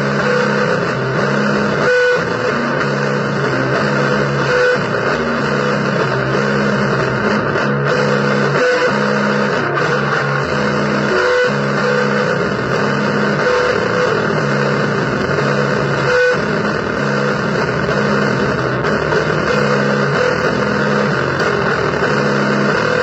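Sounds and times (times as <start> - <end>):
electric guitar riff: 0.0 - 23.0.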